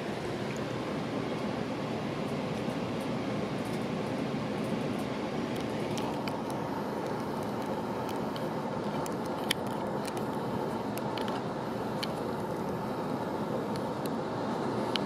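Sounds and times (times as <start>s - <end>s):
train rumbling: 0.0s - 15.0s
train clicks and rattles: 2.2s - 12.8s.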